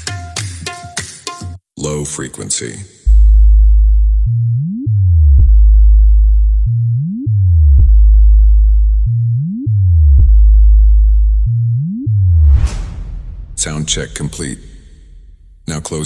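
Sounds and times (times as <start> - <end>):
deep steady bass tone: 3.1 - 15.8
upward bass sweep and click: 3.1 - 15.8.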